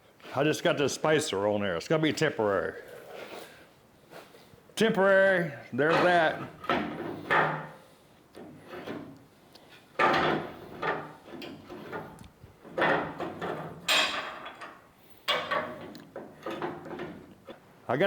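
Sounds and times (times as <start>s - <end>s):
rubbing and scraping: 5.8s - 17.6s
metal parts knocking and clattering: 9.9s - 17.4s.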